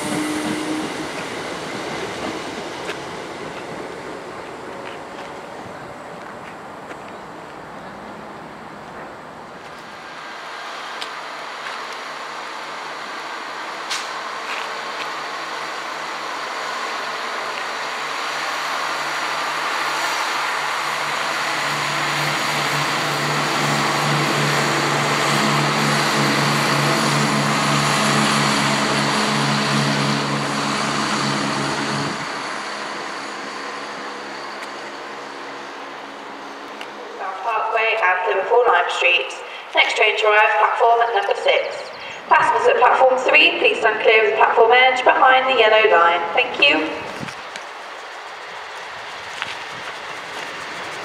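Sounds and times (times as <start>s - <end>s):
train approaching: 0.0s - 51.0s.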